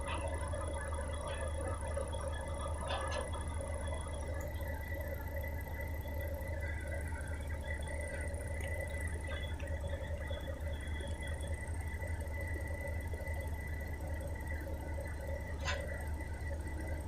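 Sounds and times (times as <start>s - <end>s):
heavy diesel machine droning: 0.0s - 17.0s.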